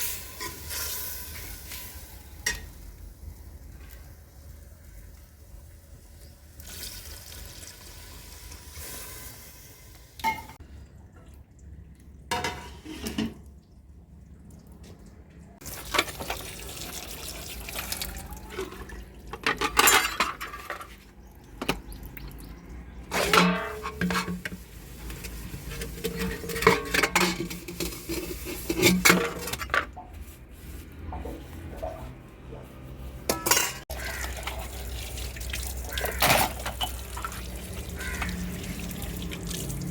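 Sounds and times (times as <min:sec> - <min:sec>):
metal dishes clattering: 0:12.3 - 0:13.4, 0:18.6 - 0:21.0, 0:23.1 - 0:24.6, 0:25.7 - 0:30.1, 0:33.3 - 0:34.2, 0:36.0 - 0:37.2.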